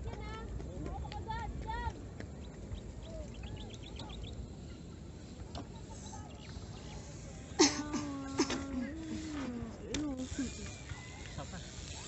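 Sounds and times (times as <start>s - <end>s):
low background noise: 0.0s - 12.0s
distant birds chirping: 1.9s - 7.9s.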